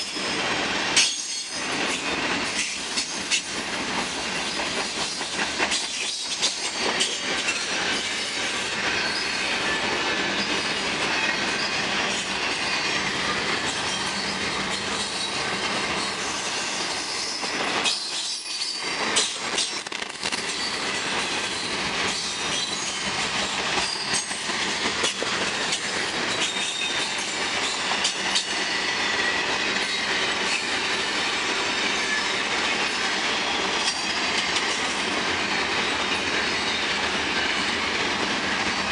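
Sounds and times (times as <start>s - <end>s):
train wheels clattering on rails: 0.0s - 38.9s
high wheel squeals: 4.4s - 19.0s, 20.5s - 24.4s, 25.5s - 31.0s, 35.8s - 37.7s.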